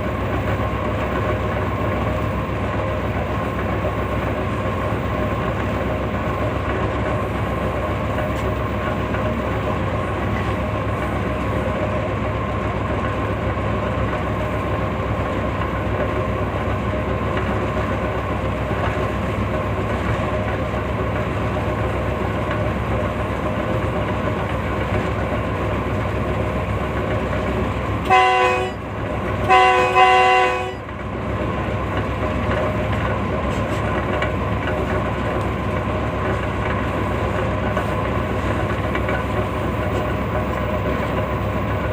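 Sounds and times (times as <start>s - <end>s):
train rumbling: 0.0s - 41.9s
train horn blasts: 28.0s - 30.9s.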